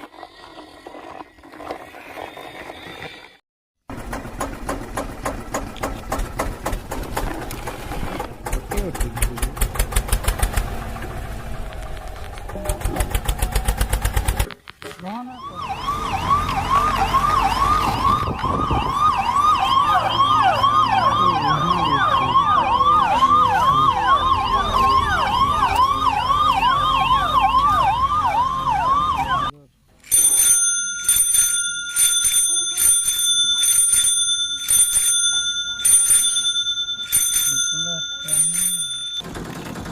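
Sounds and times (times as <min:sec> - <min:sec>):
low engine rumble: 0:03.9 - 0:14.3
ambulance siren wailing: 0:15.1 - 0:29.6
bell ringing quickly: 0:30.0 - 0:39.2.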